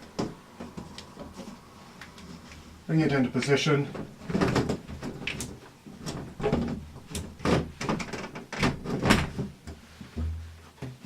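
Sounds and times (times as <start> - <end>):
dull thud: 10.1 - 10.6.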